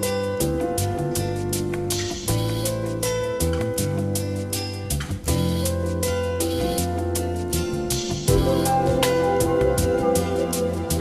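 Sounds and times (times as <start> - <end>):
guitar music with drum beat: 0.0 - 11.0.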